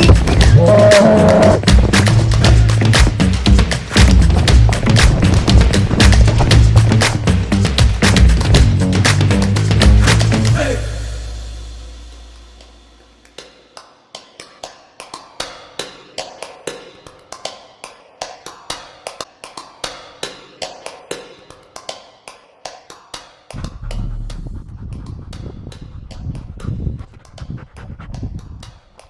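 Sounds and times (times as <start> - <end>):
music track: 0.0 - 13.2
low rumbling noise: 23.6 - 28.6.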